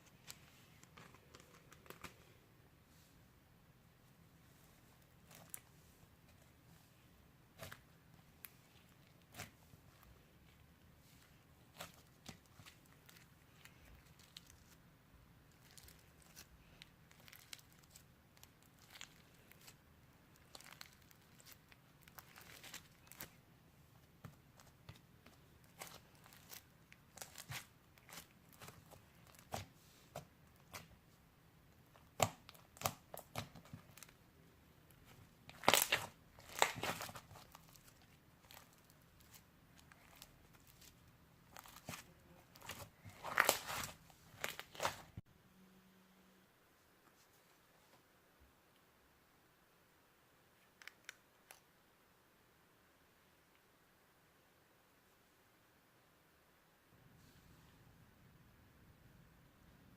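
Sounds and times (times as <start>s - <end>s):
sticky slime crackles: 7.5s - 14.8s, 15.4s - 23.4s, 24.2s - 31.0s, 31.8s - 34.2s, 34.8s - 45.2s.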